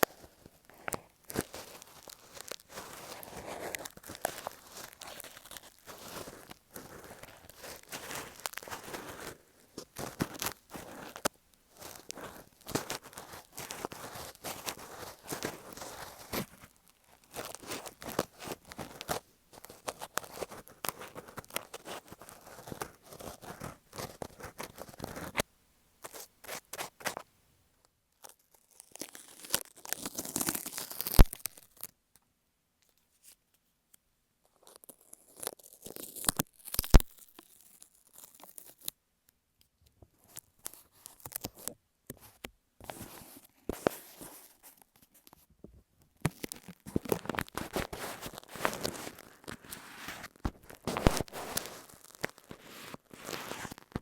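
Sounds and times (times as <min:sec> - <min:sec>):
ear pick scraping earphone microphone: 0:46.3 - 0:54.0.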